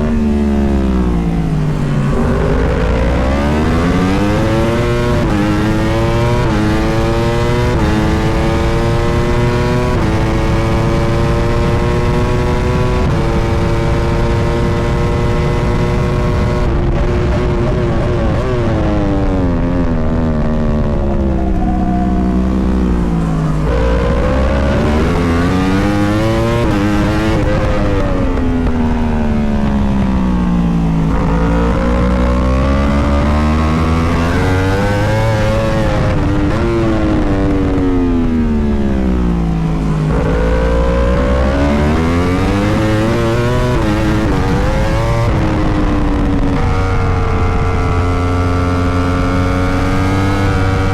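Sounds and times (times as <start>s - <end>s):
low rushing rumble: 0.0s - 5.9s, 16.7s - 42.7s
motorcycle engine revving: 0.0s - 50.9s.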